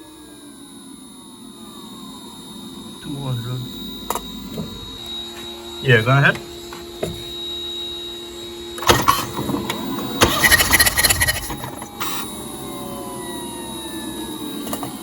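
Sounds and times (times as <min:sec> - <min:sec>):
faint whine falling in pitch: 0:00.0 - 0:15.0
engine cranking without firing: 0:08.8 - 0:12.0.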